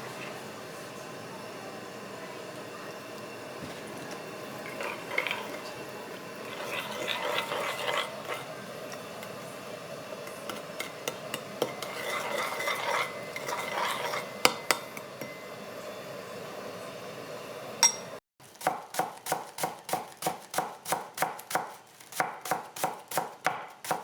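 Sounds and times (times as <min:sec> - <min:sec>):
utensil stirring in a bowl: 0:03.6 - 0:15.5.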